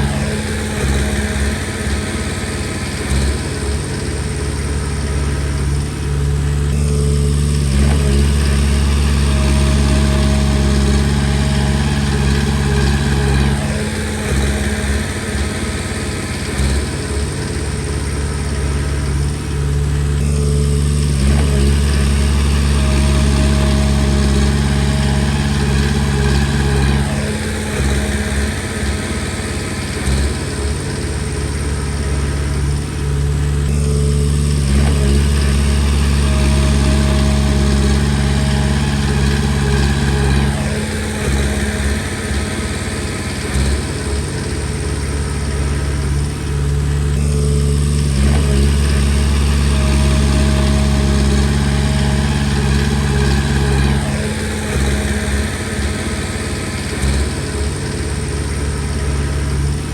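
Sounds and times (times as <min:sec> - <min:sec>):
bulldozer diesel engine working: 0:00.0 - 0:59.9.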